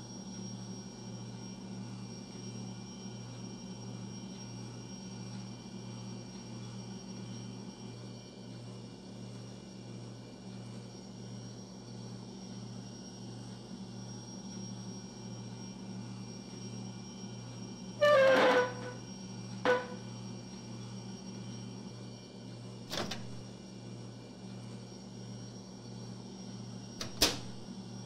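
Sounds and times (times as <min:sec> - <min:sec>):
wooden chair scraping floor: 0:18.0 - 0:19.0, 0:19.6 - 0:20.0.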